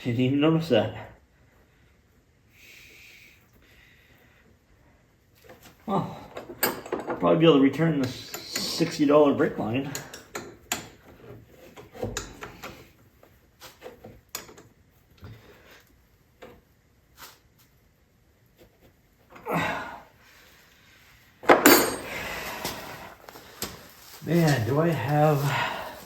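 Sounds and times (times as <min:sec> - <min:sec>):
metal tools clinking: 0:21.5 - 0:22.3.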